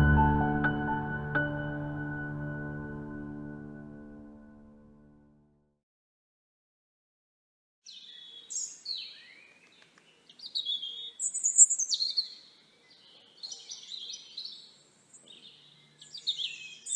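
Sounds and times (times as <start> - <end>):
songbird singing: 7.9 - 16.9.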